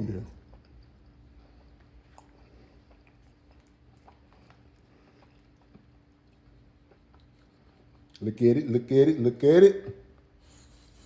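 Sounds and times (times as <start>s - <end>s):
faint steady hum: 0.0s - 11.0s
person chewing: 0.2s - 8.2s.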